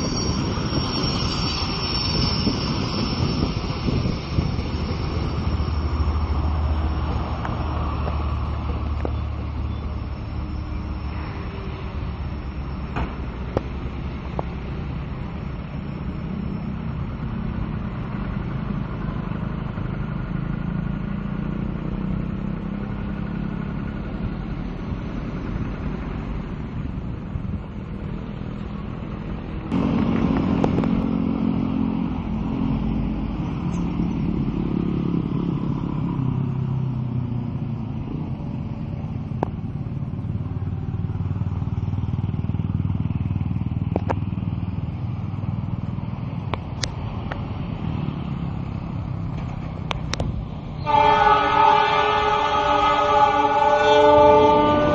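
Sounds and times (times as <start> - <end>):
train rumbling: 0.0 - 54.9.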